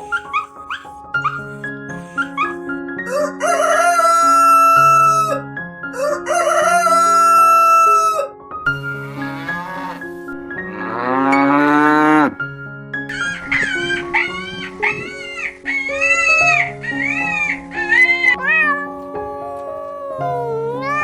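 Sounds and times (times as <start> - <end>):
rooster crowing: 3.1 - 5.4, 6.0 - 8.3, 13.1 - 15.8, 18.3 - 18.8
cow mooing: 8.8 - 12.4.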